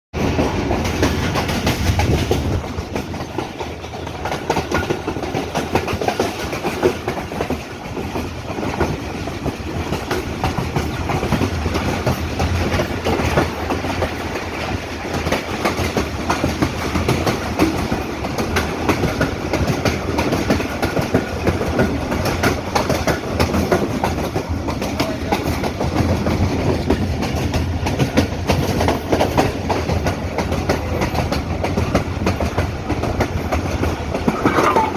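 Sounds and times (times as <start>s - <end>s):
clickety-clack over rail joints: 0.1s - 34.9s
train wheels rumbling on rail: 0.1s - 34.9s.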